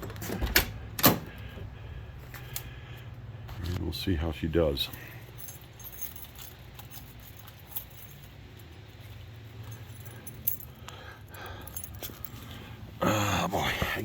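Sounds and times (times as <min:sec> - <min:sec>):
low steady hum: 0:00.0 - 0:14.0
car keys jangling: 0:04.8 - 0:12.8.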